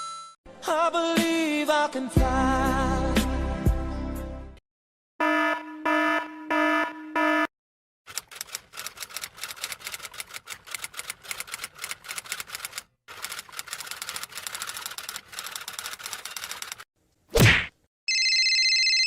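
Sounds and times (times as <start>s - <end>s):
fast typing clicks: 8.1s - 16.8s.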